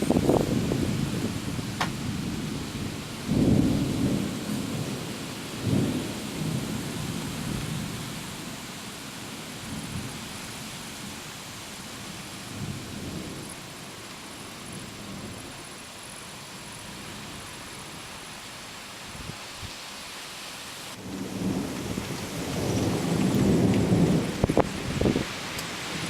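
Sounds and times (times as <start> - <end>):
thunder rumbling: 0.0 - 8.1, 21.0 - 26.0.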